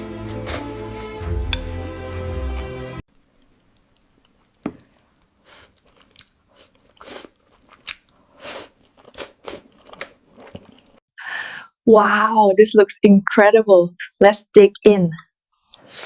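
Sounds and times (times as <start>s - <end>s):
sharp bite: 0.0s - 1.8s
crunchy chewing: 3.2s - 11.0s.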